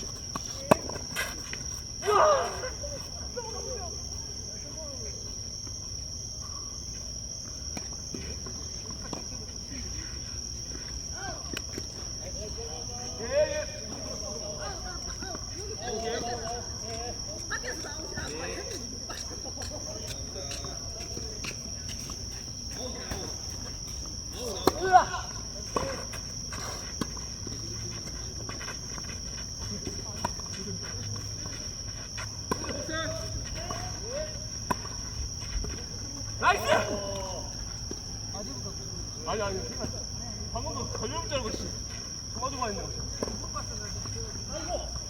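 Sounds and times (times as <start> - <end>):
insects chirring: 0.0 - 45.0
person shouting: 2.0 - 2.7.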